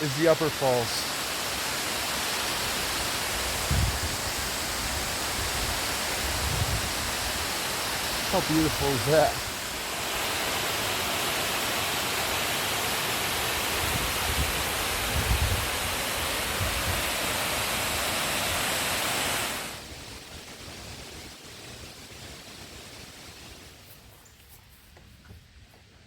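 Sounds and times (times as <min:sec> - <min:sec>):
waterfall rushing: 0:00.0 - 0:19.8.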